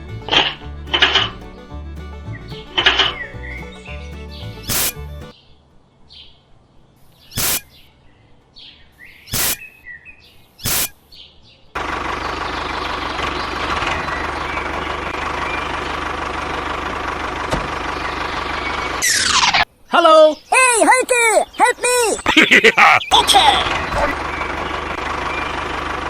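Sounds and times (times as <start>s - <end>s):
birds chirping: 0.0s - 16.1s, 17.8s - 25.8s
loud short bursts: 4.7s - 5.0s, 7.4s - 7.8s, 9.3s - 9.7s, 10.6s - 11.0s
small motor humming: 4.7s - 5.0s, 7.4s - 7.6s, 9.3s - 9.6s, 10.7s - 10.9s.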